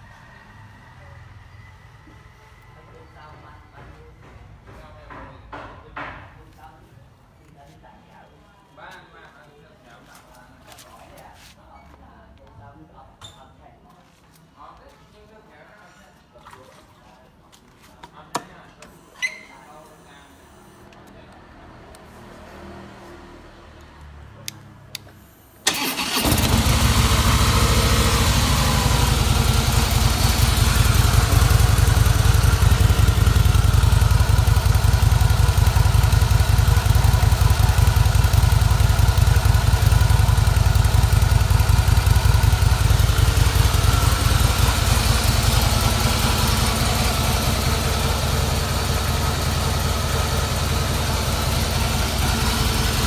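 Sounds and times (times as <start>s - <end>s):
motorcycle engine starting and idling: 25.6s - 53.0s.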